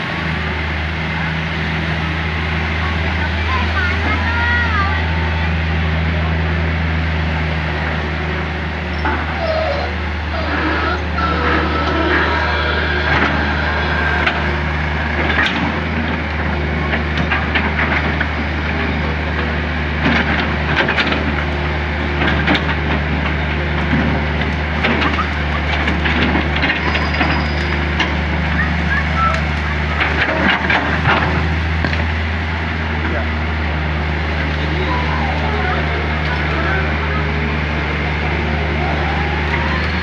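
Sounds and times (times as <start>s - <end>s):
excavator diesel engine running: 0.0s - 40.0s
cracks and clacks of material: 19.4s - 21.5s, 22.2s - 28.2s, 29.3s - 32.1s.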